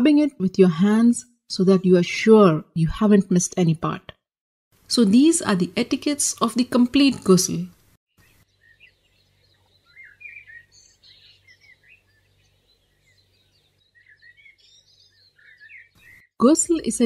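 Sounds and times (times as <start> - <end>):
faint birds chirping: 6.3 - 17.0.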